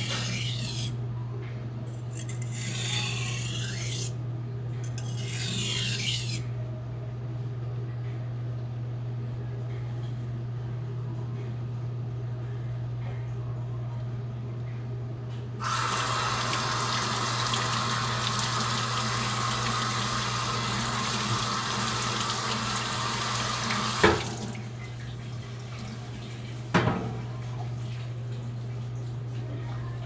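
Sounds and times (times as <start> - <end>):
water running from a tap: 15.6 - 29.0.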